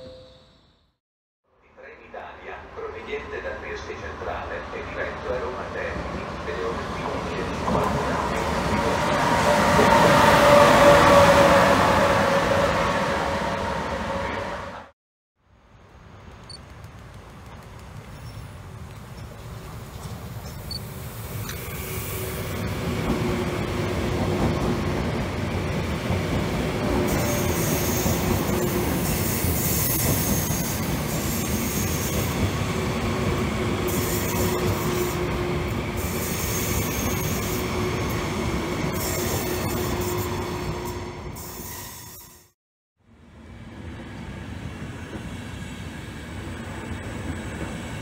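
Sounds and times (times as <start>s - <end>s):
train wheels rumbling on rail: 16.4s - 41.7s, 43.8s - 48.0s.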